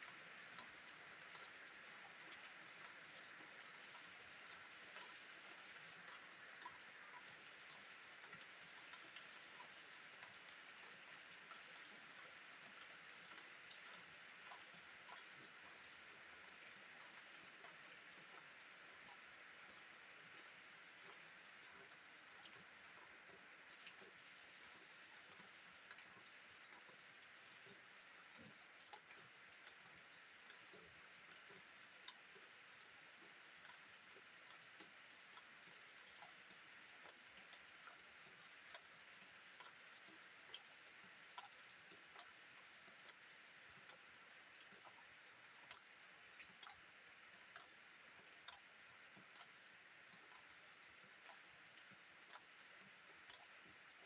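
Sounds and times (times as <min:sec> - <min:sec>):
raindrops ticking: 0:41.3 - 0:53.7.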